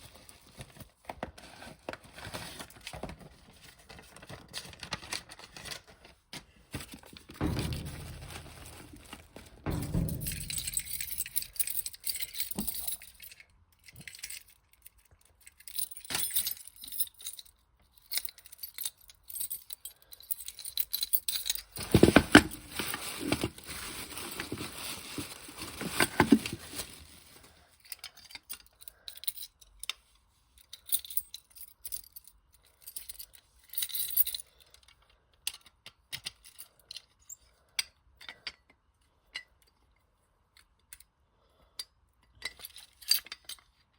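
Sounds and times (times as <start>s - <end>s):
packaging rustling and knocking: 6.7s - 12.9s, 21.8s - 27.6s.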